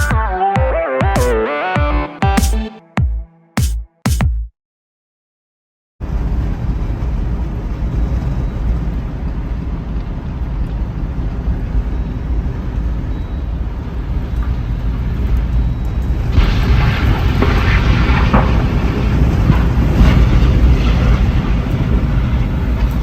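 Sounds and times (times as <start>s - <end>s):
burst of music: 0.0s - 4.3s
strong wind buffeting microphone: 16.1s - 23.0s.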